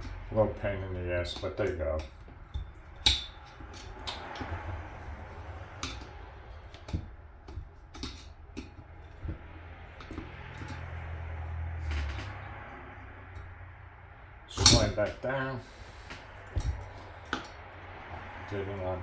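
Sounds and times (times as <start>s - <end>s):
low steady hum: 0.0s - 19.0s
metal parts and tools clicking: 1.2s - 4.6s, 5.6s - 13.6s, 14.5s - 17.6s.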